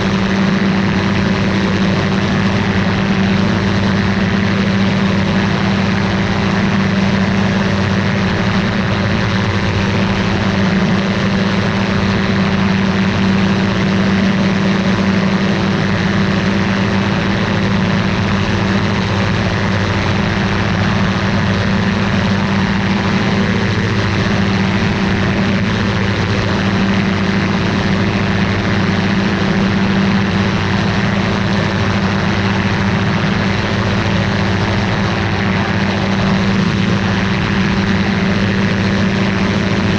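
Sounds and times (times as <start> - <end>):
aircraft engine and propeller: 0.0 - 39.9.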